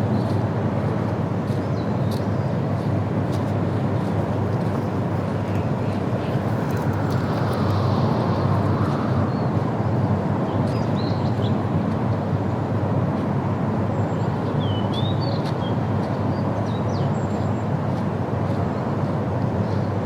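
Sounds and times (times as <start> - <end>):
low outdoor rumble: 3.8 - 9.9.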